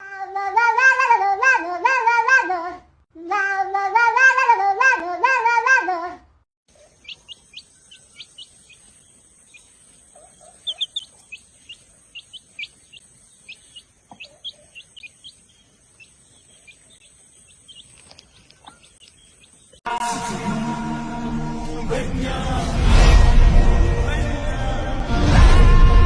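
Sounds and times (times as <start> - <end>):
small bird chirping: 6.7 - 19.8.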